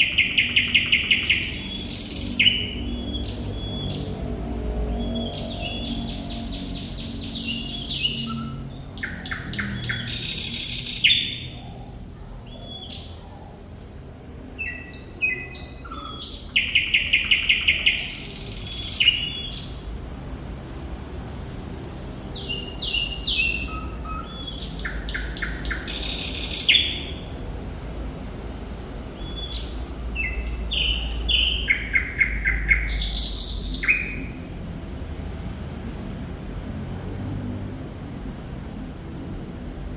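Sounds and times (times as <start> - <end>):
bird singing whistles and rattles: 6.6 - 11.5, 22.4 - 27.2.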